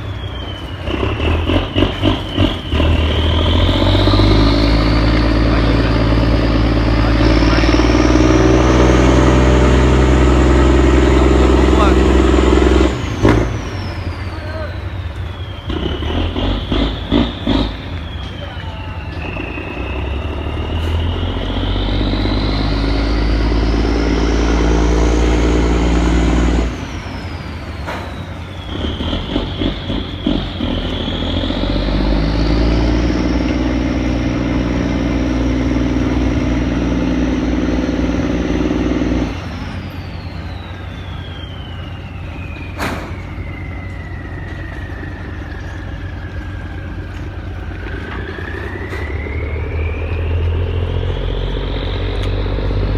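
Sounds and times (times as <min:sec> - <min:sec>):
boat diesel engine revving: 0:00.0 - 0:52.9
high engine whine: 0:00.0 - 0:52.9.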